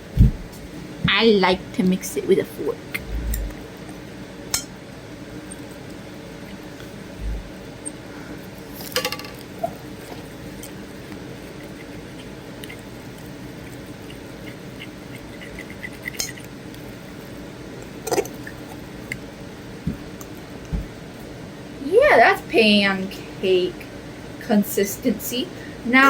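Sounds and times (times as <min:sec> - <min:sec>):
fork stirring batter: 0:09.7 - 0:16.5
fork clinking against bowl: 0:16.0 - 0:16.5.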